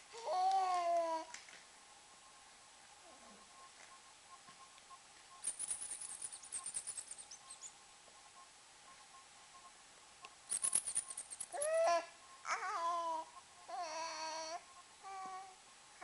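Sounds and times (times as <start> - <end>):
high-pitched clicking squeaks: 5.4 - 7.8, 10.5 - 11.9
baby squealing: 11.5 - 14.5.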